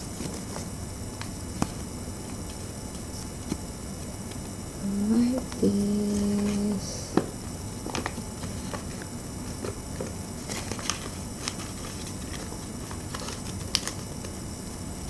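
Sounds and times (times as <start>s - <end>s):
paper rustling and folding: 0.0s - 4.5s, 7.8s - 14.4s
steady background hiss: 0.0s - 15.0s.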